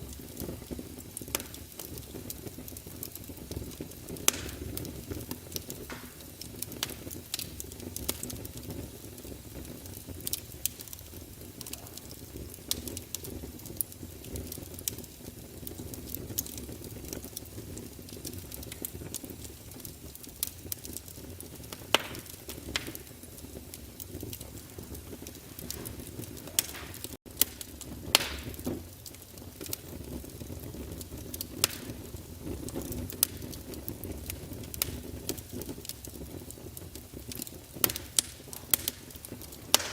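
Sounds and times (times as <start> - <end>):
fireplace fire crackling: 0.0 - 39.9.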